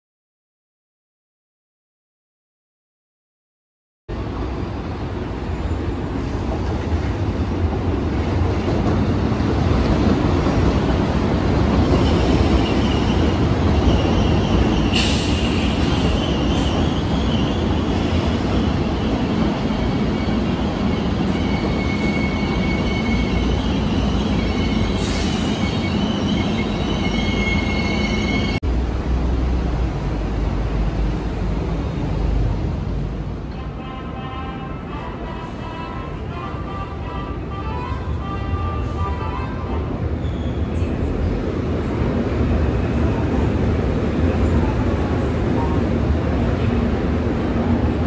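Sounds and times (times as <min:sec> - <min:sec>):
low train rumble: 0:04.1 - 0:48.0
train wheels squealing: 0:11.8 - 0:28.6, 0:40.2 - 0:41.0.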